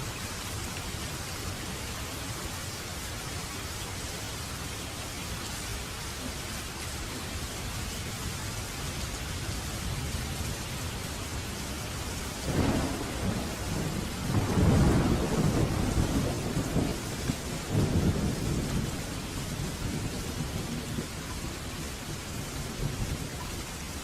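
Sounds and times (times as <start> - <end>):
steady rain: 0.0 - 24.0
thunder rumbling: 12.2 - 23.4.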